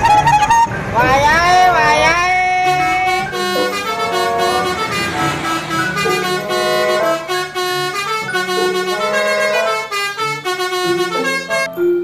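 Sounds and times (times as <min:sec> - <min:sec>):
bus engine and road noise: 0:00.0 - 0:11.7
musical multi-tone air horn: 0:02.1 - 0:11.7.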